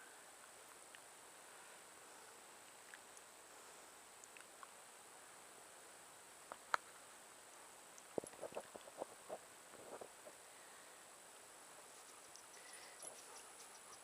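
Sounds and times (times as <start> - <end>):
high insect drone: 8.4 - 14.0.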